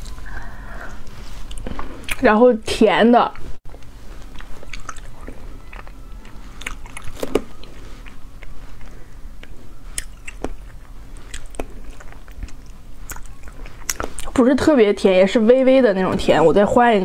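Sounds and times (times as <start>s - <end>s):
person chewing with wet clicks: 0.9s - 2.3s, 3.7s - 14.4s.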